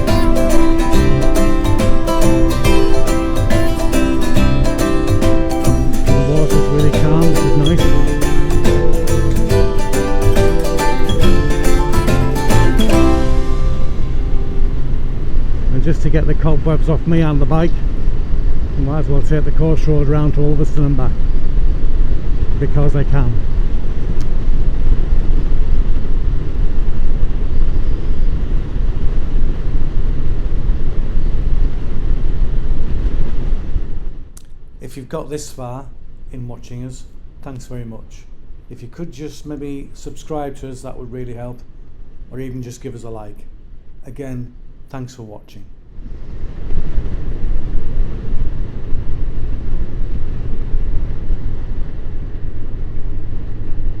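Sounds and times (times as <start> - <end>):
wind noise on microphone: 13.8 - 34.2, 45.9 - 54.0.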